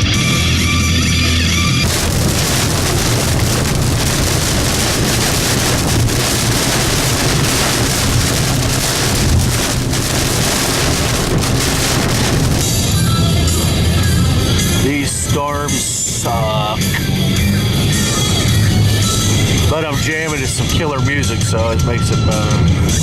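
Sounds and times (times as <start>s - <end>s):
storm rain: 1.8s - 14.4s
gusting wind: 1.8s - 15.3s.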